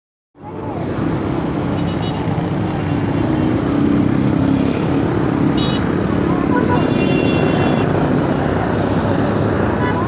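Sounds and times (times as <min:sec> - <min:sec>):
traffic engines rumbling: 0:00.4 - 0:10.0.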